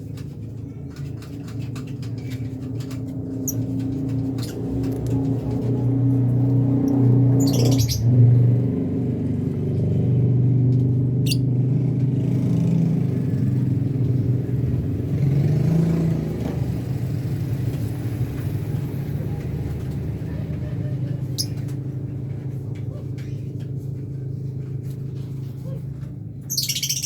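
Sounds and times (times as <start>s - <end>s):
low mechanical rumble: 0.0s - 27.0s
lovebird chirp: 6.9s - 8.1s, 11.2s - 11.4s, 26.5s - 27.0s.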